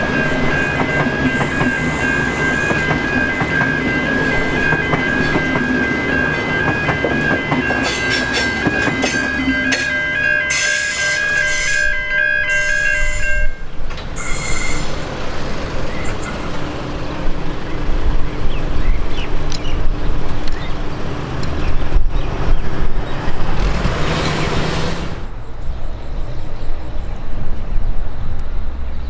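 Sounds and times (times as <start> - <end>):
train wheels rumbling on rails: 0.0 - 25.5
train wheels squealing: 0.1 - 17.2
train horn toot: 6.6 - 14.9.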